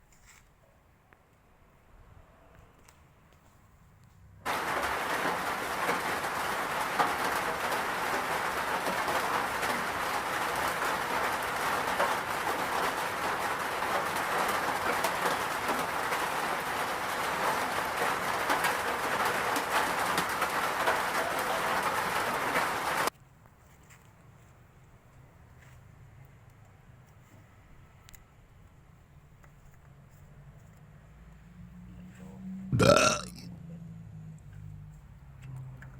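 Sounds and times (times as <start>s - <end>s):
engine hiss with fast ticking: 4.5s - 23.1s.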